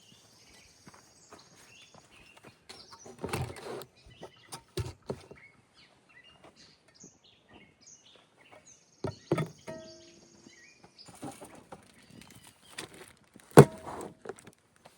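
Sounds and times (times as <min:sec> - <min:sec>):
small birds chirping: 0:00.0 - 0:13.6
knocks and clatters of handling: 0:02.7 - 0:05.4, 0:09.0 - 0:10.4, 0:11.0 - 0:14.6
rustling scrape: 0:02.7 - 0:05.4, 0:11.1 - 0:14.5.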